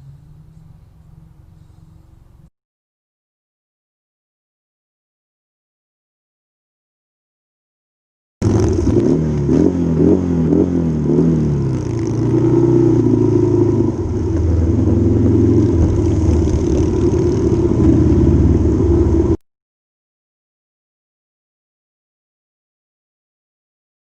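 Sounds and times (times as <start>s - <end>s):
motorcycle engine revving: 8.4s - 19.4s.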